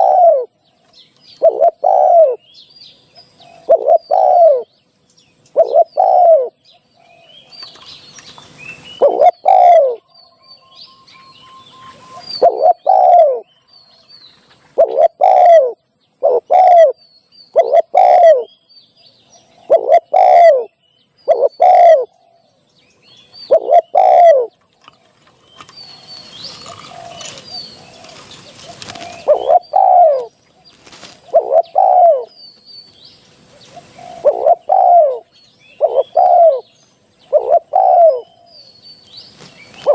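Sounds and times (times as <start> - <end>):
dove cooing: 0.0 - 0.6, 1.3 - 2.5, 3.3 - 4.7, 5.5 - 7.3, 9.0 - 10.2, 11.2 - 13.6, 14.6 - 18.5, 19.4 - 22.4, 23.4 - 24.6, 25.6 - 32.4, 33.4 - 38.7, 39.6 - 39.9
faint high bird chirps: 0.0 - 24.7, 25.4 - 39.9.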